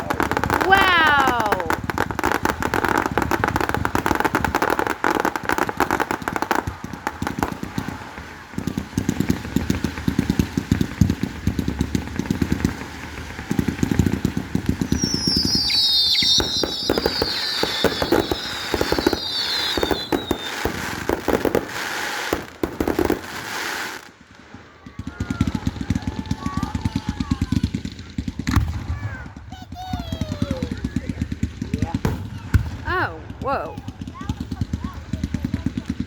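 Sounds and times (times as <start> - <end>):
fireworks whistling: 0.0 - 24.1
fireworks crackling and banging: 0.0 - 36.0.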